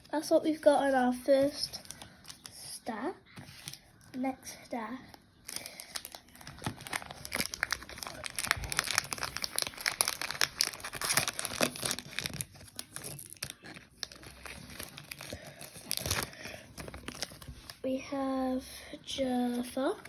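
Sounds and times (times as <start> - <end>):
plastic wrapper crinkling and tearing: 0.0 - 2.6, 5.2 - 17.8.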